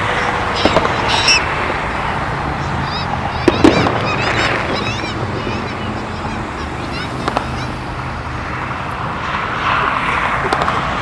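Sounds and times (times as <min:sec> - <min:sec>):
firework bang: 0:00.0 - 0:02.4, 0:03.3 - 0:05.6, 0:07.2 - 0:08.1, 0:09.4 - 0:11.0
traffic rumble: 0:00.0 - 0:11.0.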